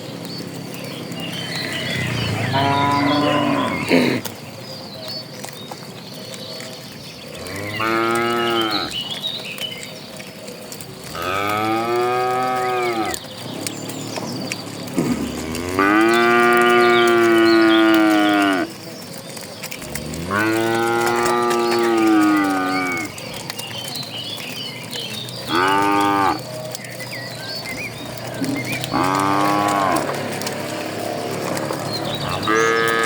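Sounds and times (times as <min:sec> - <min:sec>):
cattle mooing: 0:01.4 - 0:04.3, 0:07.3 - 0:09.0, 0:11.0 - 0:18.7, 0:19.8 - 0:23.4, 0:25.4 - 0:26.5, 0:27.7 - 0:33.0.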